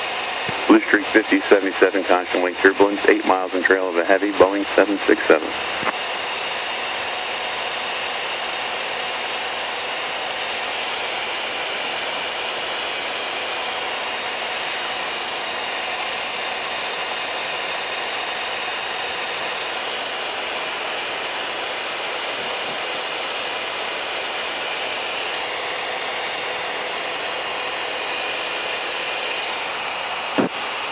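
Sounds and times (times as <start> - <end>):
airplane cabin engine drone: 0.0 - 30.9.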